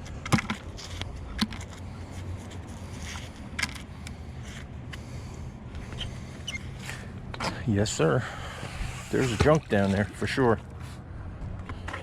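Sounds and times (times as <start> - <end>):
steady low rumble: 10.0 - 12.0.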